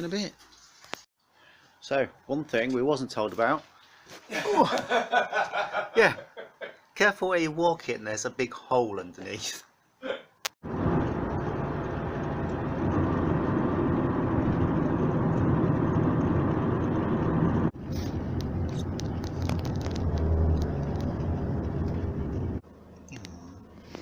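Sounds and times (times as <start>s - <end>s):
vehicle engine running: 10.7s - 24.0s.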